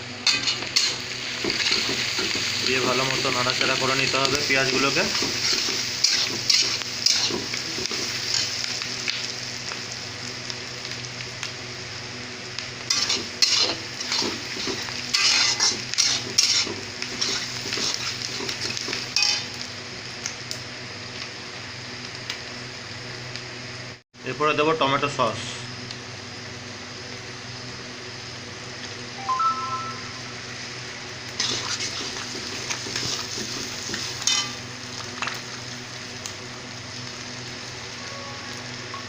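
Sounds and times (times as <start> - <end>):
food sizzling in hot oil: 0.0 - 23.8, 25.7 - 39.0
spatula scraping a pan: 12.9 - 18.6, 31.4 - 34.6.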